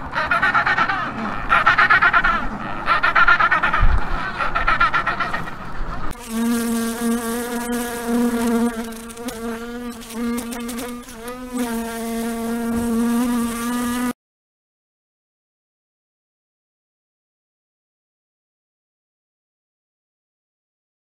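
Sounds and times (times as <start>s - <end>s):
fly buzzing in flight: 6.1s - 14.2s.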